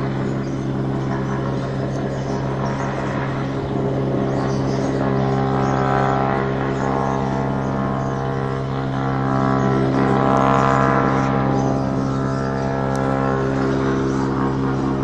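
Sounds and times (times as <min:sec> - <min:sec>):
helicopter droning hum: 0:00.0 - 0:15.0.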